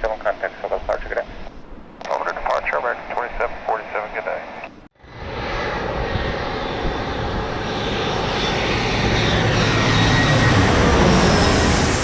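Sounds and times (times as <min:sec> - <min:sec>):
jet engines roaring past: 0:00.0 - 0:12.0.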